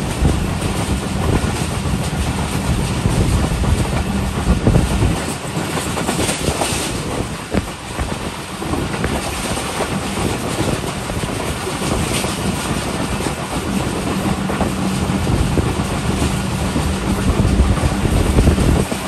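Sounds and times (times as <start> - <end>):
train wheels rumbling on rails: 0.0 - 19.0
steady low hum: 13.2 - 19.0.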